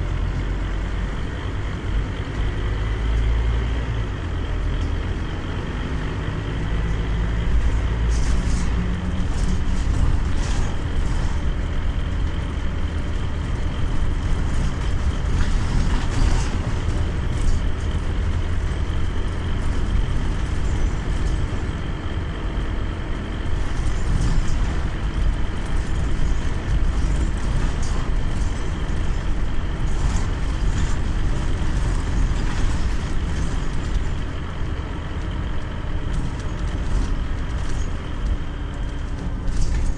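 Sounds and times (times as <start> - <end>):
bus diesel engine rumble: 0.0 - 39.9
road noise: 0.0 - 39.9.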